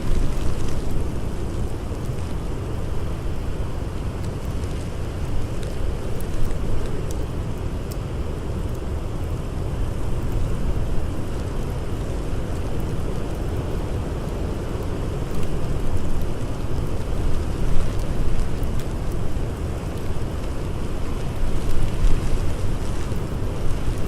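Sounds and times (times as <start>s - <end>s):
blizzard wind roaring: 0.0s - 24.0s
wood fire crackling: 0.0s - 24.0s.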